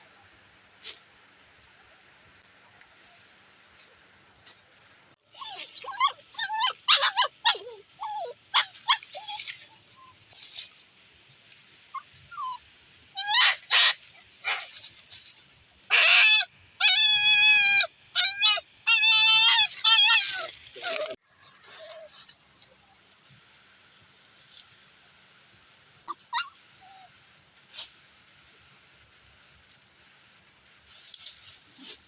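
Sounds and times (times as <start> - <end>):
puppy whimpering and yelping: 5.3 - 10.1, 11.9 - 14.6, 15.9 - 21.2, 26.1 - 27.1.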